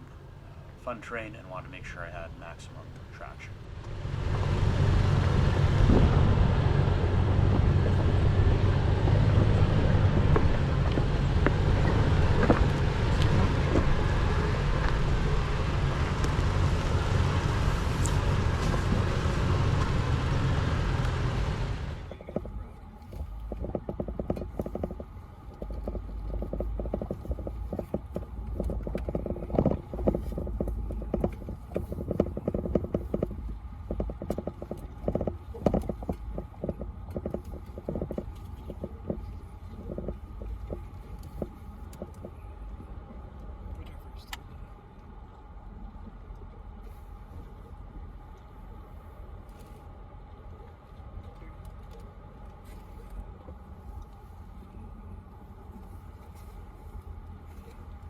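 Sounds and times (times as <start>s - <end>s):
tyres on rocky trail: 0.0s - 45.6s
vehicle engine humming: 0.0s - 58.0s
rocks clicking and knocking: 6.8s - 42.5s.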